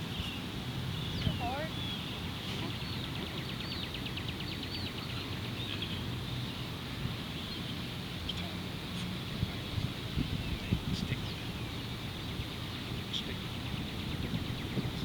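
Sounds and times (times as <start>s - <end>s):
bird singing fast trill: 0.0s - 6.6s.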